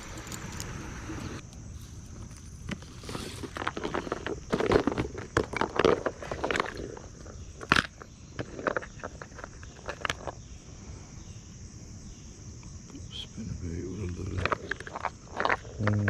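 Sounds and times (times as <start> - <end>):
rustling and clicking from handling: 2.1 - 10.4, 14.0 - 16.0.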